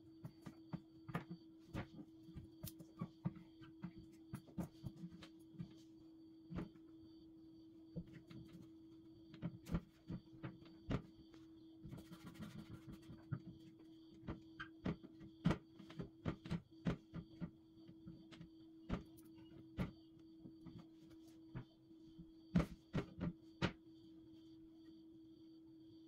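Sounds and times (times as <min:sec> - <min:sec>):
steady electrical hum: 0:00.0 - 0:26.0.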